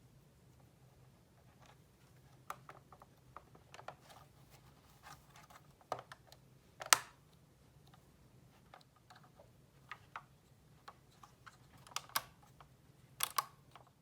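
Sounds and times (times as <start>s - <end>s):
small plastic parts clicking: 5.4s - 8.0s, 8.6s - 14.0s.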